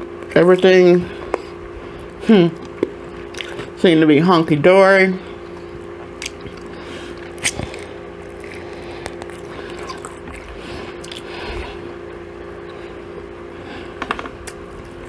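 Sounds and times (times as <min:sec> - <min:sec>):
steady low hum: 0:00.0 - 0:15.0
wet squishy chewing: 0:01.1 - 0:03.8, 0:05.2 - 0:13.4
sharp mouth clicks: 0:06.2 - 0:11.6.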